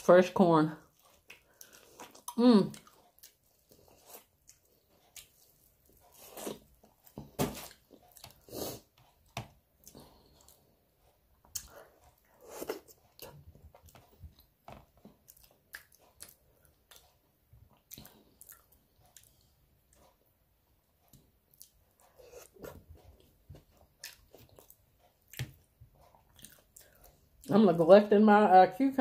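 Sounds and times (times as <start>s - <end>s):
biting and chewing corn: 0.8s - 20.2s.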